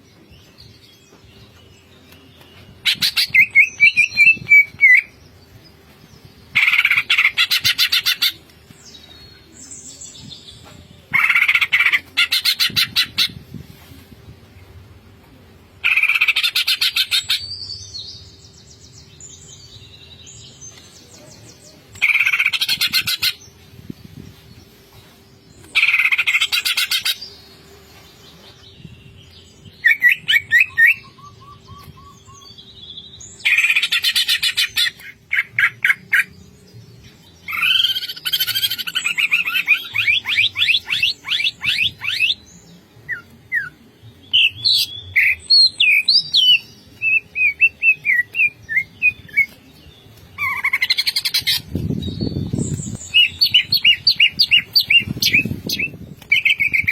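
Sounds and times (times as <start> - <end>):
bird singing trills and whistles: 2.4 - 5.2, 29.8 - 32.6, 37.4 - 56.9.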